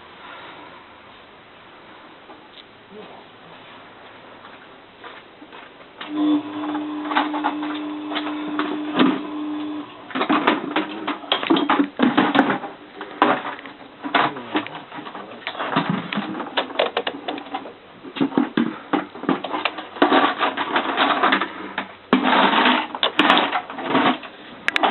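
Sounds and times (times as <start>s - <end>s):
washing machine hum: 3.1s - 24.9s
washing machine clicking and clattering: 10.1s - 14.4s, 15.0s - 24.9s.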